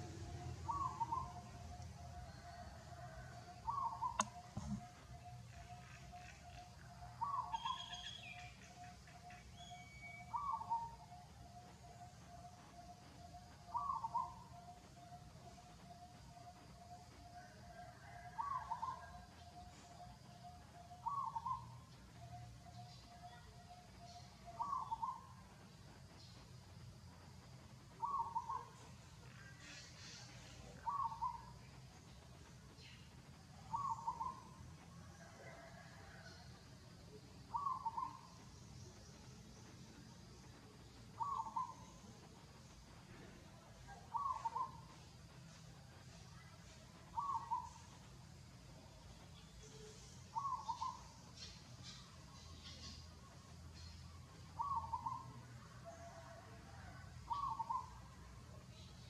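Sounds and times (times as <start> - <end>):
bird hooting call: 0.0 - 8.5, 9.5 - 11.2, 13.2 - 15.1, 17.7 - 19.3, 20.8 - 21.7, 24.0 - 25.3, 28.0 - 28.8, 29.5 - 31.5, 33.7 - 34.5, 37.5 - 38.3, 41.2 - 42.0, 43.9 - 44.8, 47.2 - 47.8, 50.3 - 51.2, 54.6 - 55.2, 56.0 - 58.0
higher bird chirps and whistles: 7.2 - 8.6.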